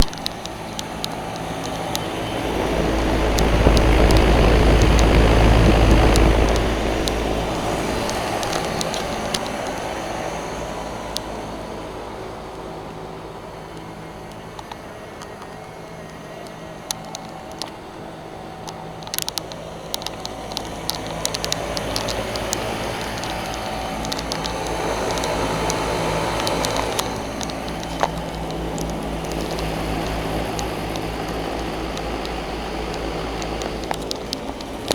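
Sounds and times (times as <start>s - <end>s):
small clicks: 0.0s - 11.6s, 13.7s - 34.9s
compressor hum: 0.0s - 34.9s
fans blowing air: 0.0s - 34.9s
low rumble: 1.8s - 8.8s.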